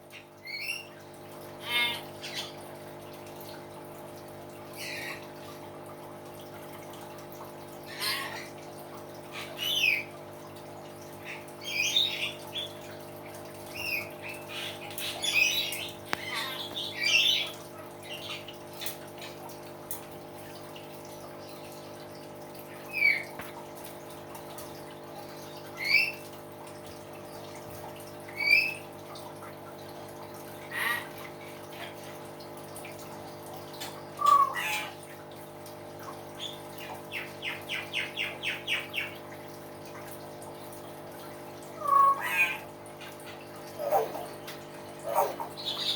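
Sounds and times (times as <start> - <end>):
bird whistles and squawks: 25.8 - 26.2, 34.2 - 35.0, 41.8 - 42.7.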